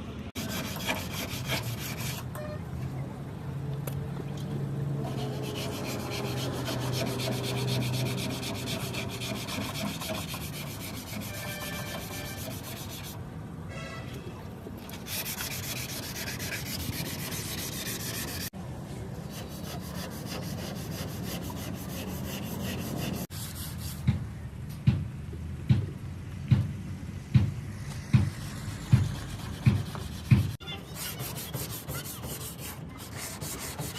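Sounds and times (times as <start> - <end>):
sanding on metal: 0.4 - 2.3, 5.1 - 13.2, 14.9 - 18.5, 19.2 - 24.0, 28.8 - 33.9.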